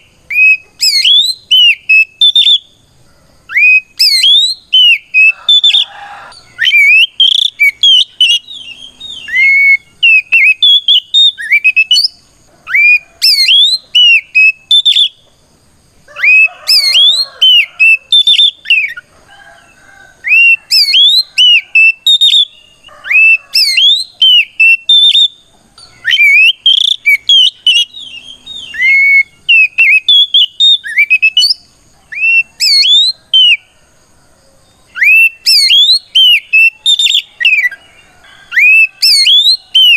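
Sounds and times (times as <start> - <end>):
bird singing whistled notes: 0.0 - 2.8, 3.5 - 15.3, 16.2 - 19.1, 20.2 - 33.7, 34.7 - 39.9.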